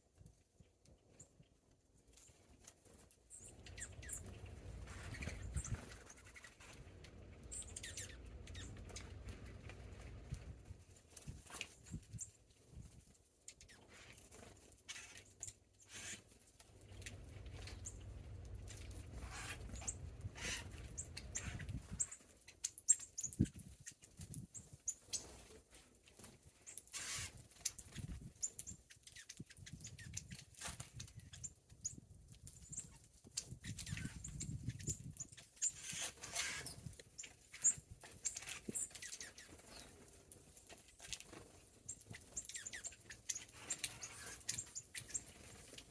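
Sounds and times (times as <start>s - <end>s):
birds pecking and scratching: 0.1s - 45.9s
low rumble: 17.1s - 21.7s.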